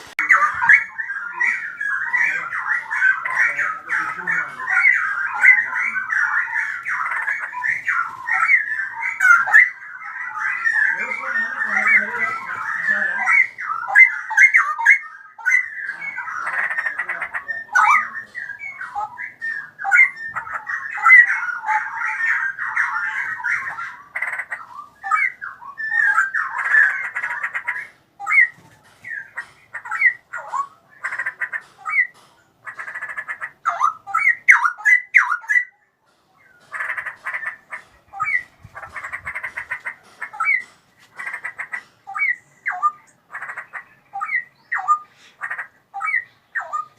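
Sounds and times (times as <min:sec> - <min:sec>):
bird singing whistled notes: 0:33.7 - 0:35.9, 0:44.0 - 0:45.1.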